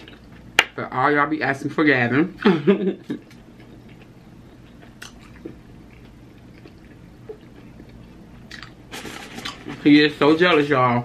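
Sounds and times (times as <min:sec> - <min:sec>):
person chewing food: 0:03.1 - 0:09.8.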